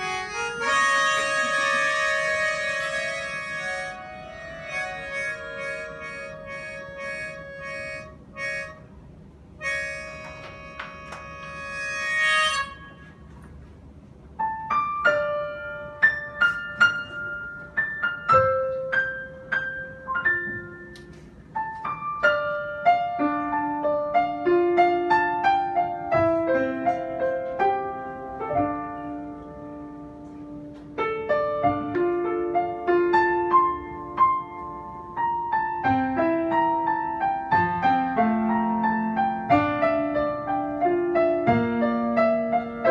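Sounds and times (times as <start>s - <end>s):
reed instrument chords: 0.0s - 9.0s, 9.6s - 13.3s
solo piano melody: 0.0s - 42.9s.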